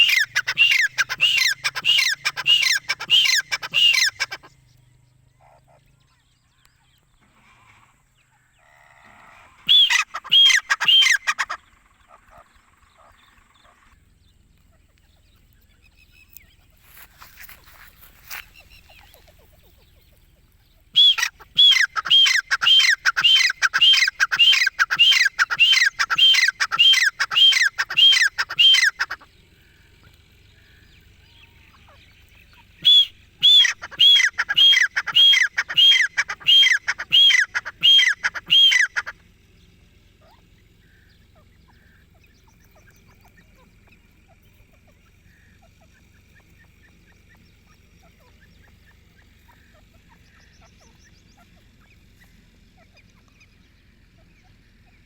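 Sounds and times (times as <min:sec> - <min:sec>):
francolin calling ringing notes: 0:00.0 - 0:04.4, 0:09.7 - 0:11.6, 0:21.0 - 0:29.2, 0:32.8 - 0:39.1.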